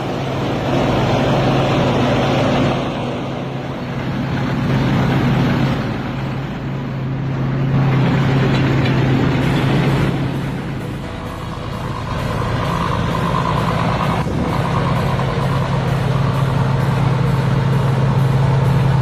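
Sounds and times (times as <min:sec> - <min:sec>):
combine harvester engine humming: 0:00.0 - 0:19.0.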